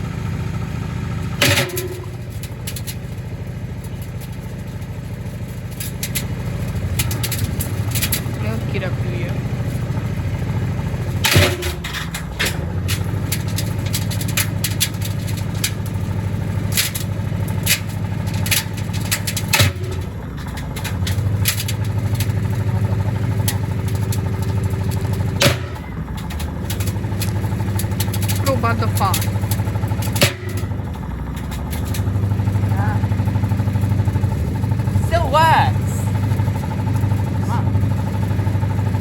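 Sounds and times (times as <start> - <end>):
washing machine motor hum: 1.4 - 39.0.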